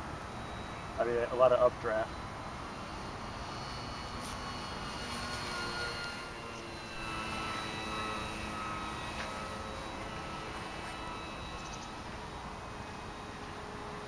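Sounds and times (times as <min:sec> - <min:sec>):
model airplane motor whining: 0:00.0 - 0:14.0.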